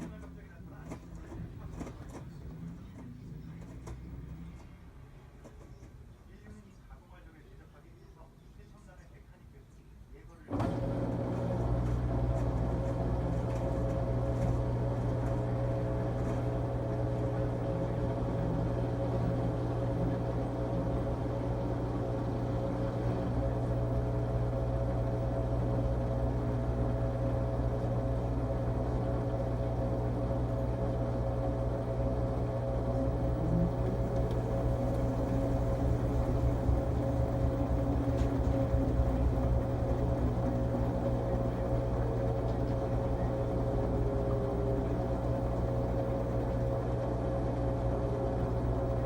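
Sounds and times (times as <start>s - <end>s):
washing machine humming: 10.5s - 49.0s.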